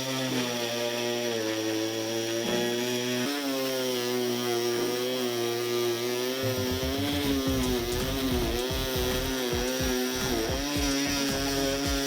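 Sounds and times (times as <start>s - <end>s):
oscillating multi-tool cutting: 0.0s - 12.0s.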